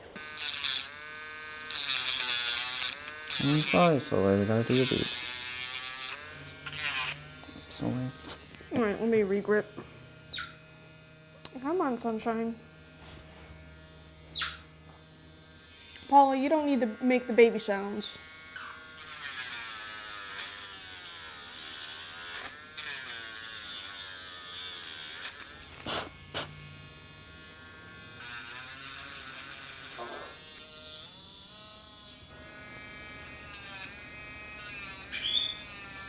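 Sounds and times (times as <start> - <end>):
rotary grinding tool whine: 0.0 - 36.0
parrot call: 35.1 - 35.6.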